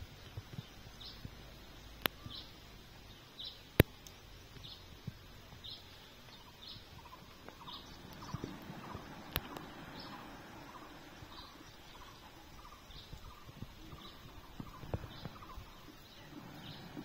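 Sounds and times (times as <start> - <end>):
sharp clicks: 7.4 - 9.7.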